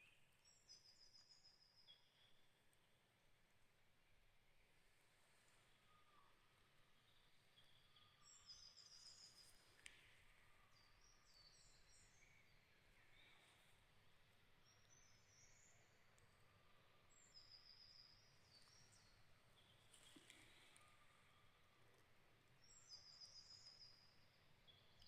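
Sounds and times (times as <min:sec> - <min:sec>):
songbirds twittering: 0:05.7 - 0:21.8, 0:22.5 - 0:25.0.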